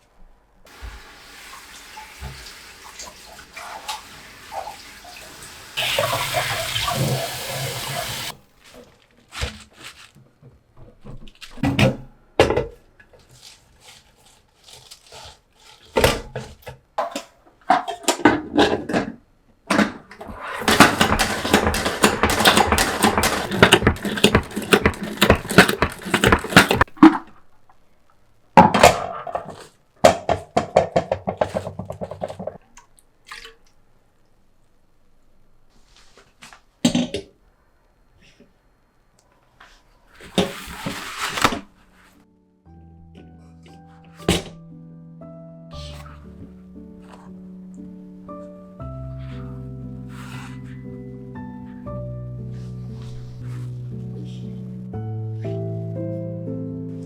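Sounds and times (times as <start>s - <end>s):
water running from tap: 0.7s - 8.4s
kitchen utensils clinking: 19.8s - 27.0s
rapid dense clattering: 20.6s - 26.9s.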